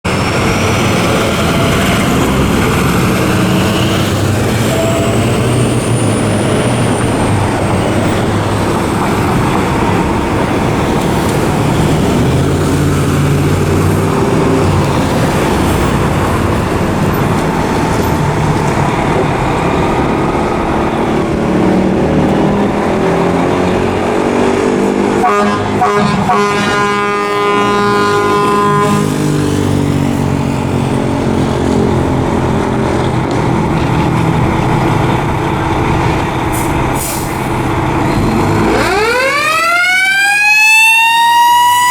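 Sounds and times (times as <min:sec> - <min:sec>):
fire engine running: 0:00.0 - 0:41.9
wailing siren: 0:00.1 - 0:33.0, 0:38.4 - 0:41.9
air horn blast: 0:25.0 - 0:29.3.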